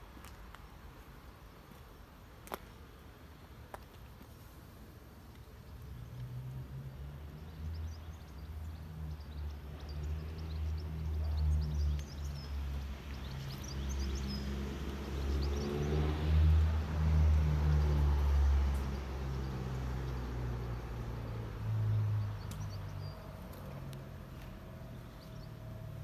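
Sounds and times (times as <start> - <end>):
birds chirping faintly: 17.6 - 26.0.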